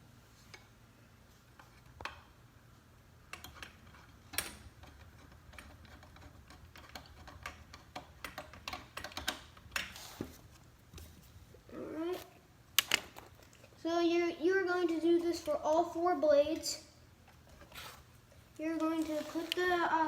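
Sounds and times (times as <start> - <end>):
small clicks and taps of fan parts: 3.3 - 9.9.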